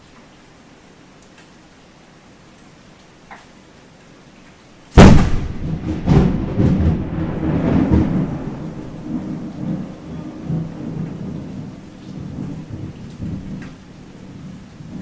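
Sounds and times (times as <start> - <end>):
thunderclap: 5.0 - 13.8
rolling thunder rumble: 5.0 - 15.0.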